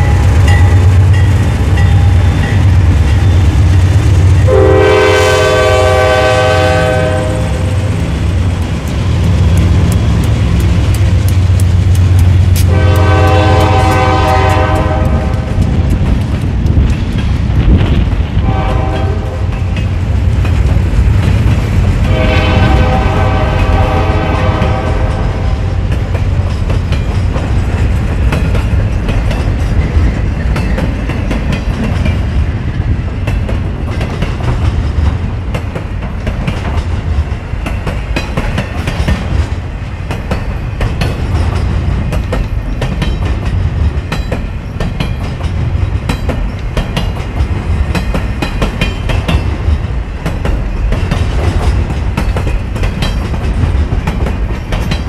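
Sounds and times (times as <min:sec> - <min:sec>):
freight train wheels clattering: 0:00.0 - 0:55.0
locomotive horn blasts: 0:04.5 - 0:07.9, 0:12.6 - 0:15.6, 0:18.4 - 0:19.6, 0:22.1 - 0:25.8.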